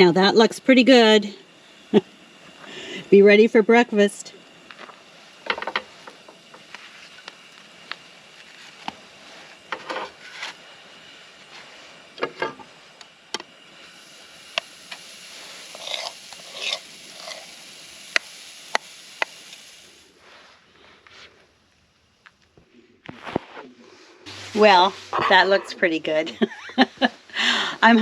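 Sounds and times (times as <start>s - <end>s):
cooking hiss: 0.0s - 28.0s
utensil scraping pan: 15.7s - 17.5s.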